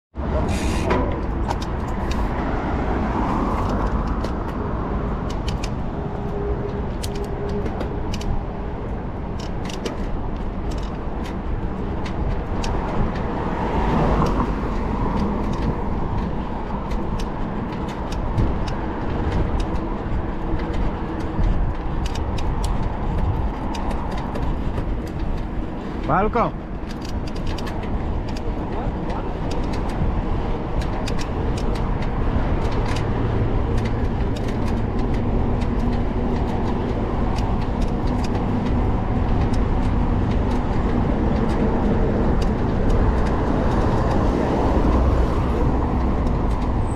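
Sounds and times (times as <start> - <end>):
bike tyre noise: 0.2 - 46.9
wind rumble on microphone: 0.2 - 46.9
bike clicks and rattles: 0.4 - 46.9.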